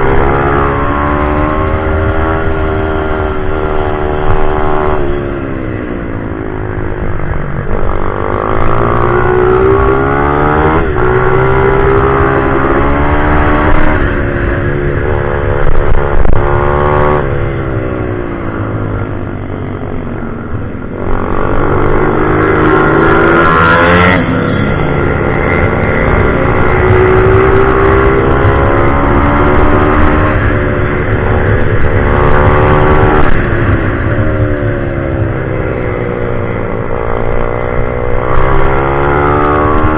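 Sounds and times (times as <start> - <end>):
pit bike engine revving: 7.7 - 17.4, 20.9 - 39.9.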